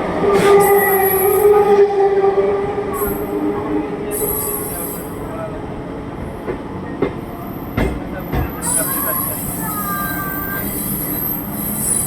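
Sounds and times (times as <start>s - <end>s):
electric train running on rails: 0.0s - 12.0s
high-pitched wheel squeal: 8.7s - 12.0s.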